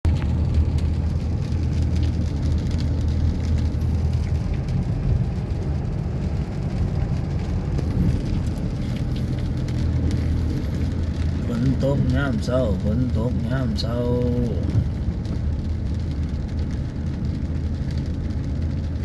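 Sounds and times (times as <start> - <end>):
low rumble: 0.0 - 19.0
steady rain: 0.1 - 19.0.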